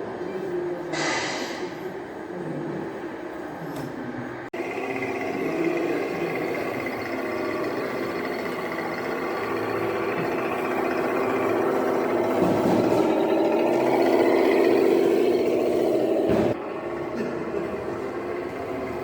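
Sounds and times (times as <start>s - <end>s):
model earthmover mechanical drone: 4.6s - 19.0s.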